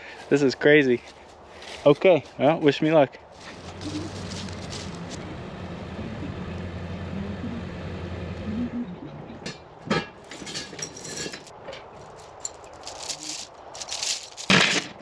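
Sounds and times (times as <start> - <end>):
engine idling: 3.5 - 8.8
clinks and knocks: 9.4 - 15.0.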